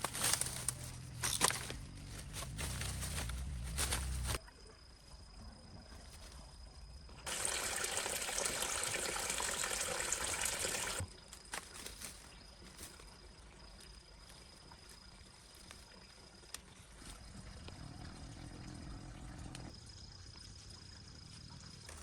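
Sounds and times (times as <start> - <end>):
water pouring: 7.3 - 11.0.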